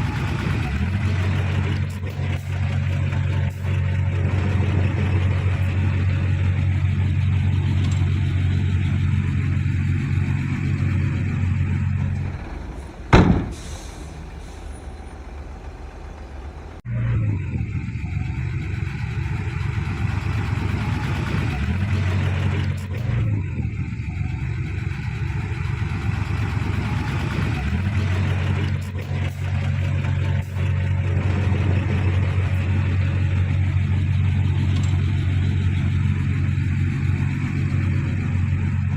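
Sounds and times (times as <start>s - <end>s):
heavy diesel engine running: 0.0s - 38.9s
loud bang: 12.2s - 15.2s.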